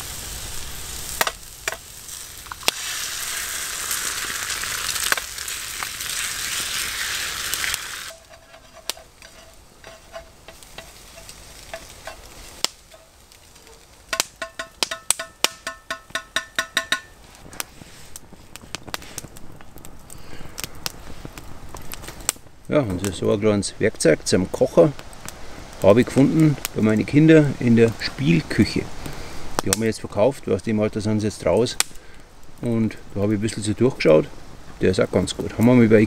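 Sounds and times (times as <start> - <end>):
mushrooms sizzling in a pan: 0.0 - 19.2
utensil scraping a pan: 2.6 - 13.2.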